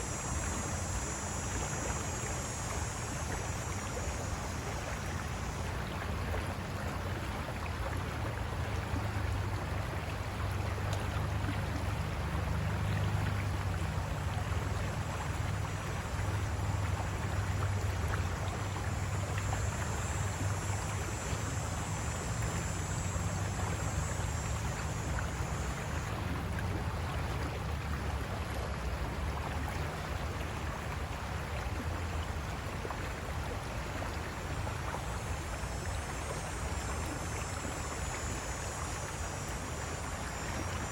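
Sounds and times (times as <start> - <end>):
thin high hiss: 0.0 - 6.3
river water rushing over rocks: 0.0 - 40.9.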